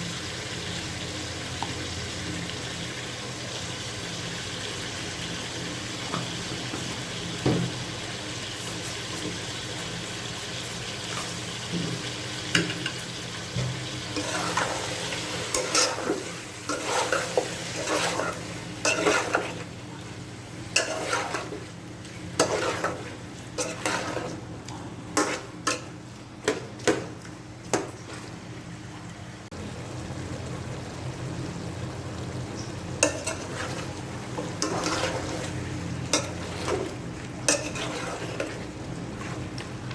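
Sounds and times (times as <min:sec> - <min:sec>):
food sizzling in hot oil: 0:00.0 - 0:24.5, 0:29.5 - 0:39.6
utensil scraping a pot: 0:14.2 - 0:19.7, 0:20.7 - 0:21.6, 0:22.4 - 0:24.4, 0:33.0 - 0:39.5.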